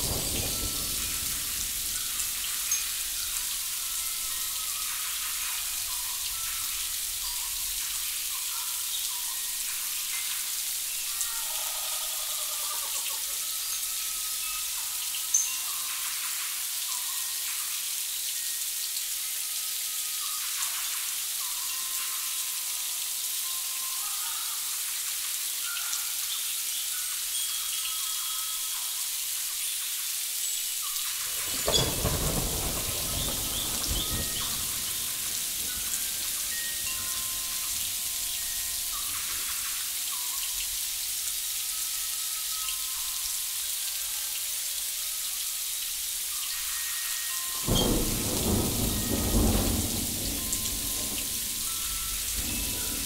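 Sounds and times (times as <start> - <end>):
steady high hiss: 0.0 - 53.0
low rolling rumble: 31.2 - 38.1, 47.8 - 53.0
faint scattered tones: 46.2 - 53.0.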